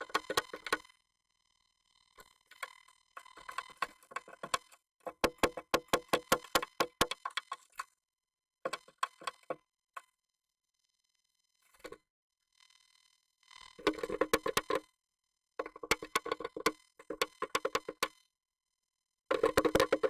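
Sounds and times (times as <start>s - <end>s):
bird tapping inside wooden box: 3.2s - 7.7s, 13.9s - 14.8s, 15.6s - 18.0s, 19.3s - 20.0s.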